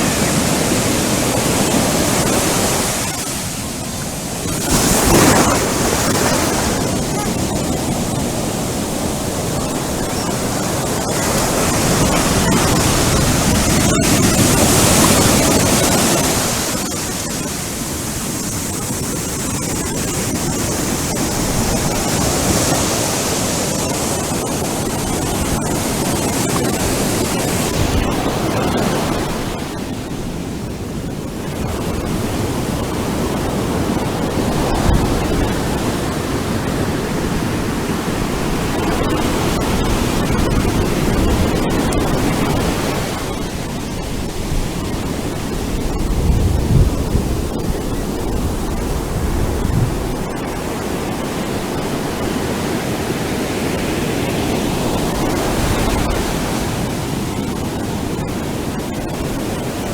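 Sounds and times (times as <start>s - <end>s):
ocean surf breaking: 0.0s - 59.9s.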